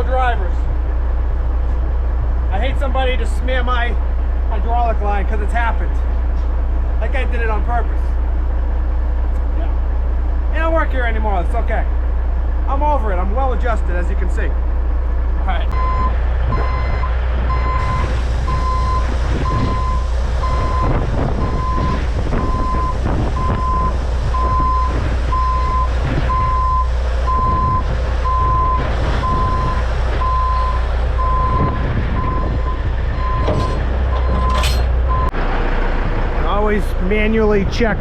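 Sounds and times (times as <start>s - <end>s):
diesel truck engine running: 0.0s - 38.0s
backup alarm beeping: 15.7s - 35.3s.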